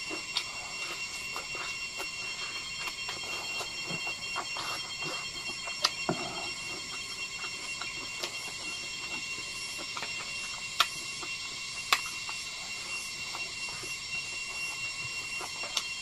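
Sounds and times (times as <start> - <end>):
man chewing food: 0.0 - 16.0
steady high-pitched whine: 0.0 - 16.0.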